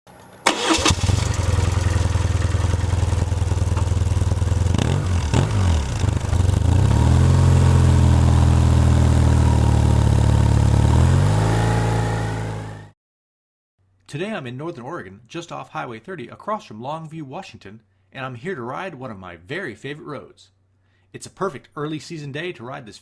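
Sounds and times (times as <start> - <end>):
motorcycle engine idling: 0.6 - 11.0.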